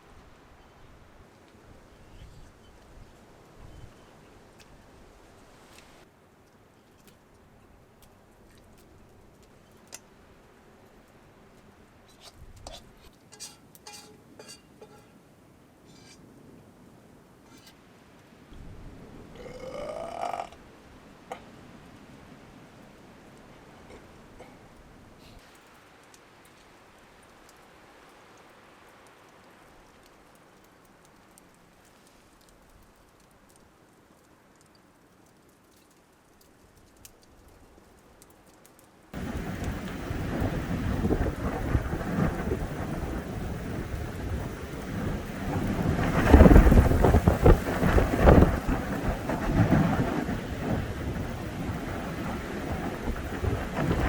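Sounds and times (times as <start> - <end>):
campfire crackling: 0.0 - 54.0
wind buffeting microphone: 39.2 - 54.0.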